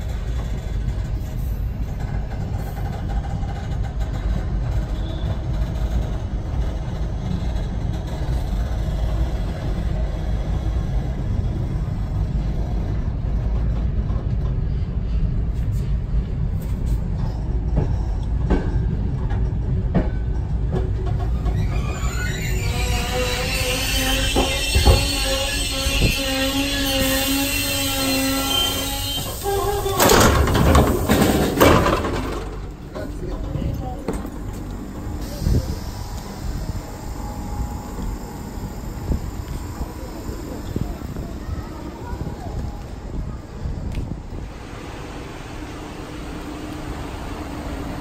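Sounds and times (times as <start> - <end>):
train coach rumbling: 0.0 - 48.0.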